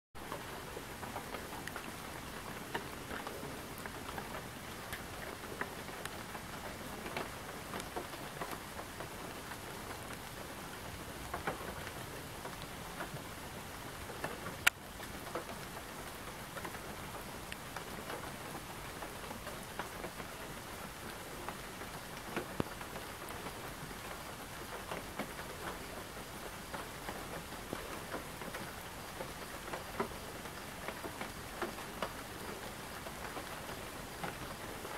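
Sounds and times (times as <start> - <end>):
rain falling: 0.2 - 34.9.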